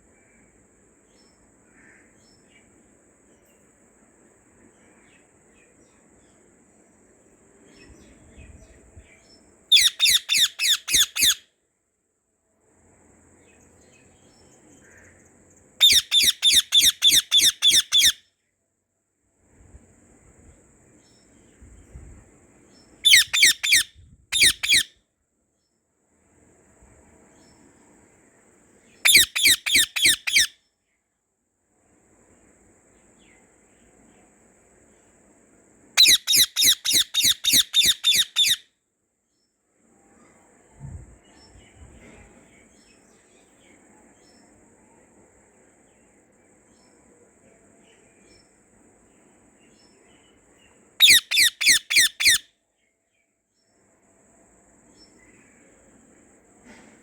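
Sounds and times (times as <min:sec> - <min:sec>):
faint background chirping: 0:00.0 - 0:57.0
budgerigar chirping: 0:09.7 - 0:11.4, 0:15.8 - 0:18.2, 0:23.1 - 0:24.9, 0:29.1 - 0:30.5, 0:36.0 - 0:38.6, 0:51.0 - 0:52.5.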